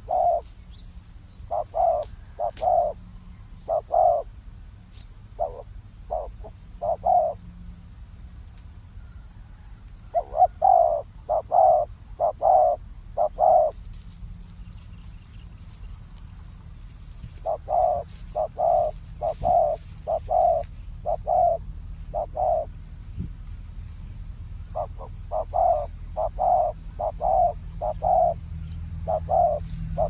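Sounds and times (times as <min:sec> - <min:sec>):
dove cooing: 0:00.0 - 0:00.5, 0:01.5 - 0:03.0, 0:03.6 - 0:04.3, 0:05.3 - 0:07.4, 0:09.6 - 0:13.9, 0:17.0 - 0:22.8, 0:24.4 - 0:30.0.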